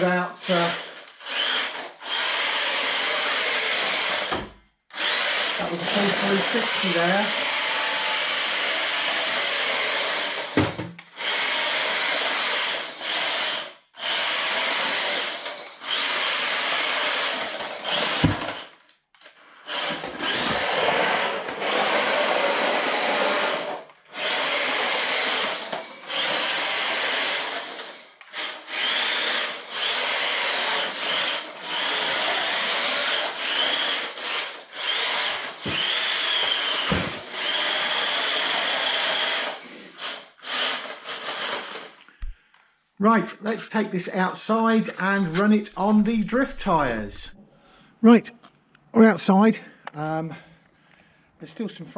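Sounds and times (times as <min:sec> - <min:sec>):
electric motor whining: 0:05.0 - 0:13.5, 0:19.8 - 0:41.9.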